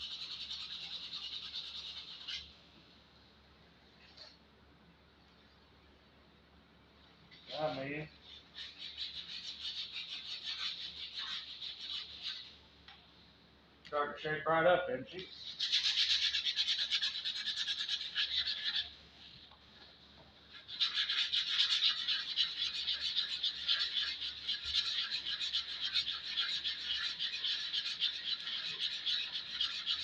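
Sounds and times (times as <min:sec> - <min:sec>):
sandpaper rubbing on wood: 0:00.0 - 0:02.4, 0:08.6 - 0:12.6, 0:15.4 - 0:18.9, 0:20.7 - 0:30.0.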